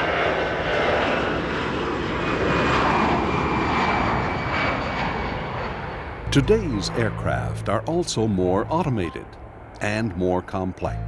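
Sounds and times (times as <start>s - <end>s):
aircraft engines rushing: 0.0s - 11.0s
faint high whine: 6.2s - 10.1s.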